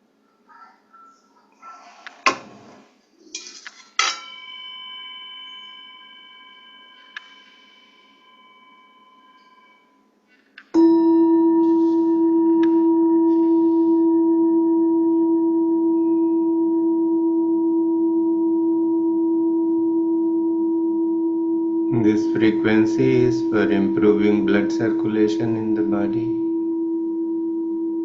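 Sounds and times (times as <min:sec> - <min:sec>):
singing bowl ringing: 0:04.1 - 0:10.2, 0:10.8 - 0:28.0
steady low tone: 0:10.8 - 0:28.0.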